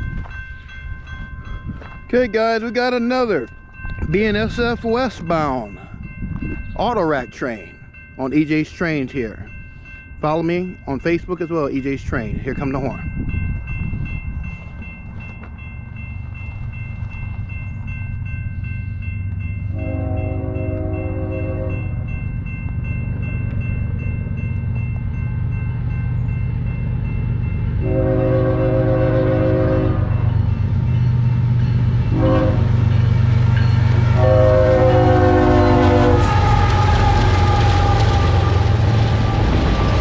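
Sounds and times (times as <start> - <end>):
locomotives rumbling: 19.3 - 40.0
train air horn: 19.7 - 21.8, 27.8 - 30.2, 32.1 - 32.8, 34.2 - 39.6.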